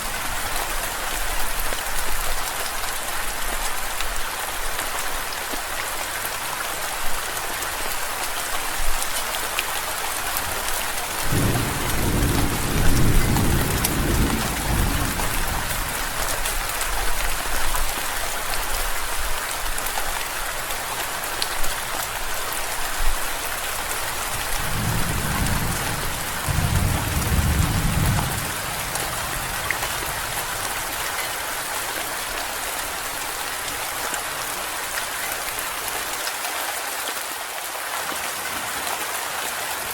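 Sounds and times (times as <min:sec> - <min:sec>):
steady rain falling: 0:00.0 - 0:39.9
low rolls of thunder: 0:11.2 - 0:16.4, 0:24.3 - 0:31.0.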